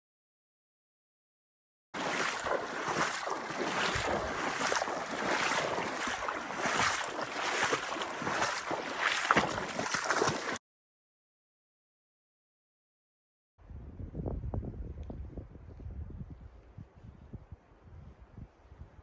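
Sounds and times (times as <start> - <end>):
water splashing and lapping: 2.0 - 10.6
wind buffeting microphone: 13.6 - 19.0.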